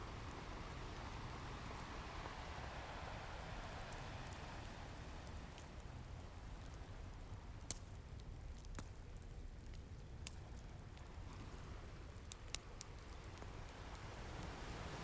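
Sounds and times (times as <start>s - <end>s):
wood fire crackling and popping: 3.9s - 14.7s.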